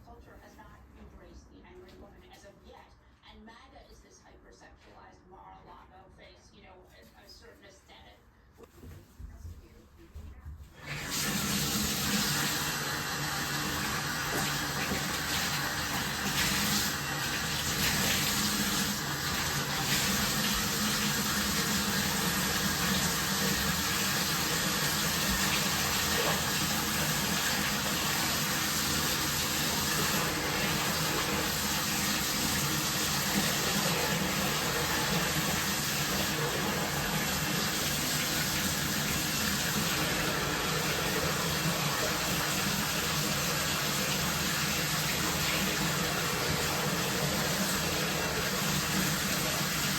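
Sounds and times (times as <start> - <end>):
water running from bathtub tap: 10.7 - 49.9.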